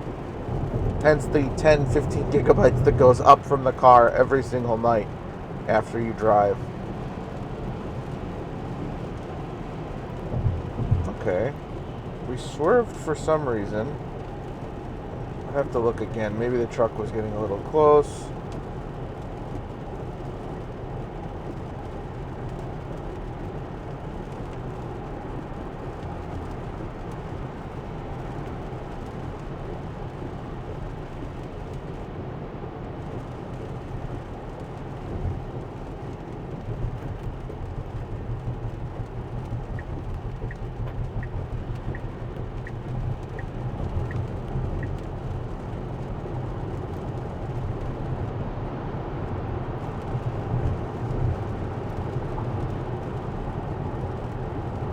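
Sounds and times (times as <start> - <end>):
tyre noise on wet road: 0.0 - 54.9.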